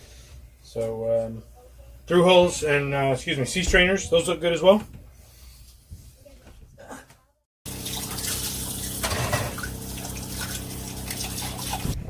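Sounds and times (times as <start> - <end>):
water running from hose into bucket: 7.7 - 12.0.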